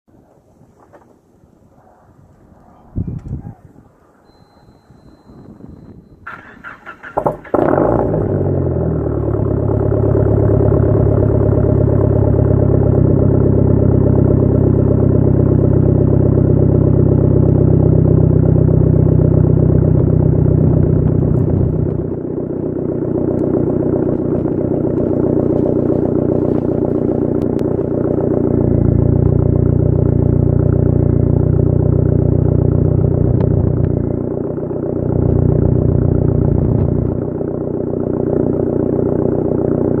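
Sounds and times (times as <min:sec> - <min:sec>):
engine cranking: 0:06.2 - 0:08.0
car engine idling loudly: 0:06.3 - 0:40.0.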